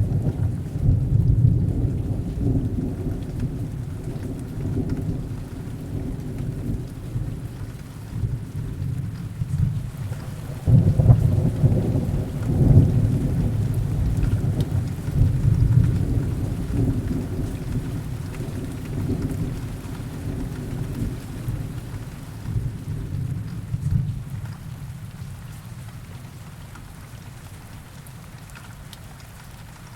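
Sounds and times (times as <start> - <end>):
thunder rumbling: 0.0 - 24.4
heavy rain: 0.0 - 29.9.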